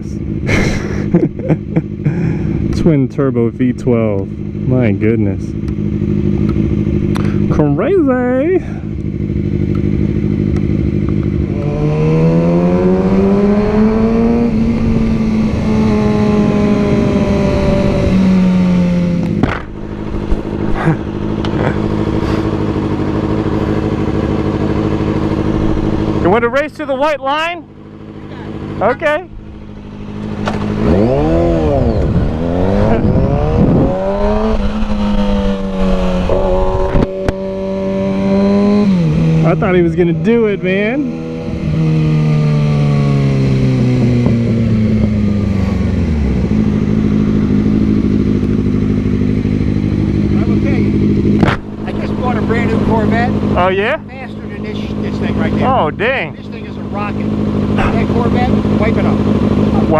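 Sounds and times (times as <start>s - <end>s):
motorcycle engine running: 0.0s - 59.9s
sharp knocks: 19.3s - 20.4s, 51.3s - 51.7s.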